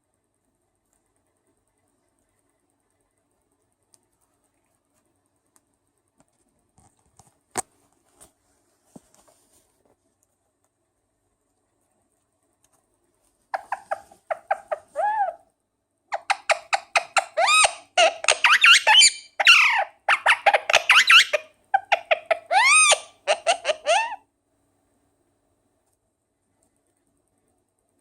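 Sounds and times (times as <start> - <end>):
parakeet chattering: 13.5 - 15.4, 16.1 - 24.2.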